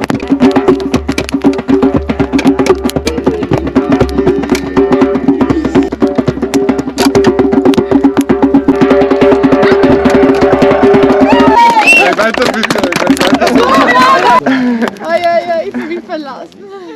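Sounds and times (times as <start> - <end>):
held low notes: 0.0 - 11.6
fast clicking percussion: 0.0 - 15.6.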